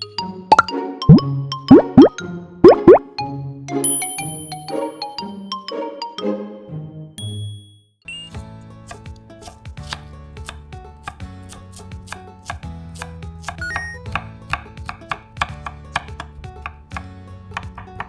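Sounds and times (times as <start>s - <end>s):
knife chopping on cutting board: 8.8s - 18.0s.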